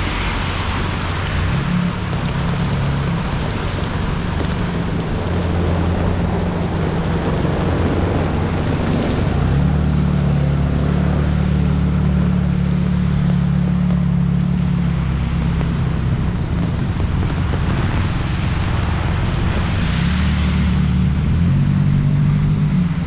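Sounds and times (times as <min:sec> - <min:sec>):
heavy rain hissing: 0:00.0 - 0:10.7
vehicle engine running: 0:00.0 - 0:23.0.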